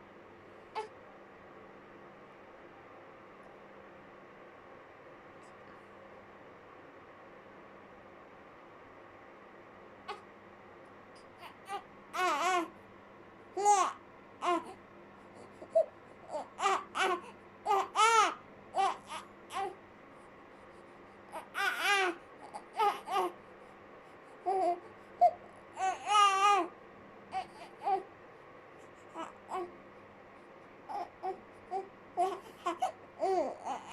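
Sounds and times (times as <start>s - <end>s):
baby crying: 11.4s - 12.7s, 13.6s - 14.8s, 15.6s - 19.8s, 21.3s - 23.4s, 24.4s - 26.7s, 27.3s - 28.1s, 29.1s - 29.7s, 30.9s - 33.9s.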